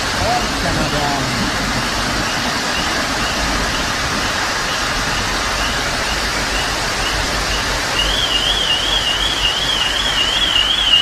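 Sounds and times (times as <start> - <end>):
floodwater rushing: 0.0 - 11.0
rain: 0.0 - 11.0
electronic alarm wavering tone: 2.2 - 11.0.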